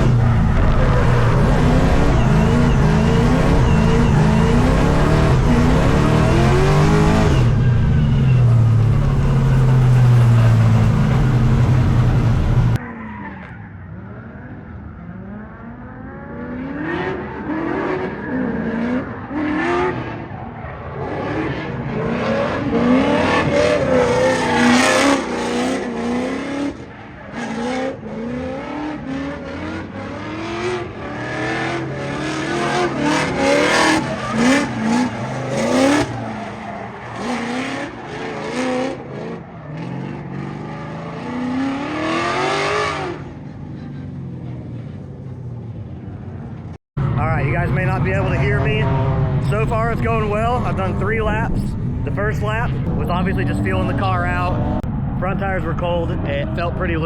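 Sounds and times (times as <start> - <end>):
car engine revving: 0.0 - 57.0
tyres squealing: 32.3 - 38.8.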